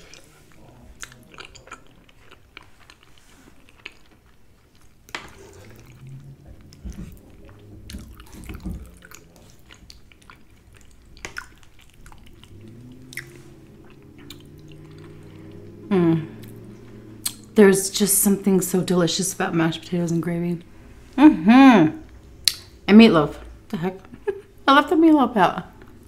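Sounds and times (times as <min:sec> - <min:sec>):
person chewing food: 0:00.0 - 0:17.6.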